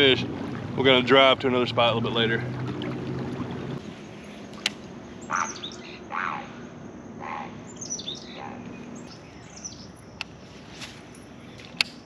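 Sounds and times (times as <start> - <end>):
songbirds chirping and calling: 3.7 - 11.8.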